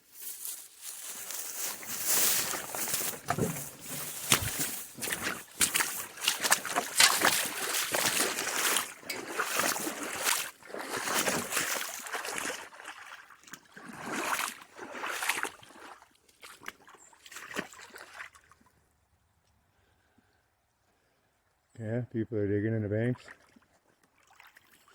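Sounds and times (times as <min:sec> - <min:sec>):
footsteps with swishing rustle: 0:00.0 - 0:12.0.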